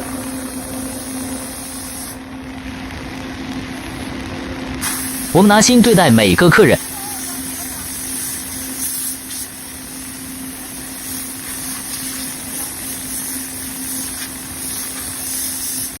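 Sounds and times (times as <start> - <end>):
high-pressure air hissing: 0.3 - 2.2, 4.8 - 5.3, 6.8 - 16.0.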